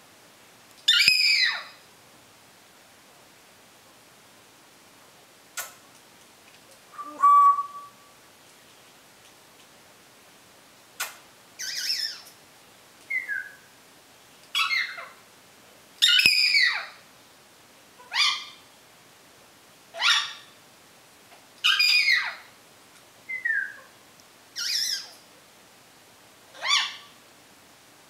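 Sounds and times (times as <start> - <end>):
parrot squawking calls: 0.9 - 1.8, 7.0 - 8.0, 11.6 - 12.2, 14.6 - 15.2, 16.0 - 17.0, 18.0 - 18.6, 20.0 - 20.5, 21.6 - 22.5, 24.6 - 25.1, 26.6 - 27.2
parrot short whistles: 7.0 - 8.0.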